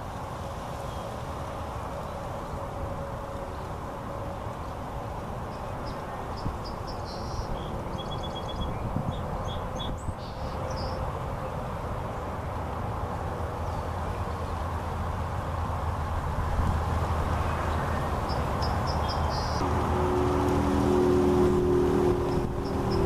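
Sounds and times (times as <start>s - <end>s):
small bird chirps and trills: 5.5s - 11.1s, 17.4s - 19.6s.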